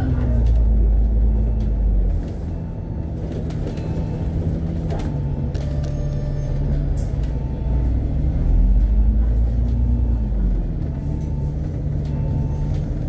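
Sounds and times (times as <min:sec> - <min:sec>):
bus diesel engine rumble: 0:00.0 - 0:13.0.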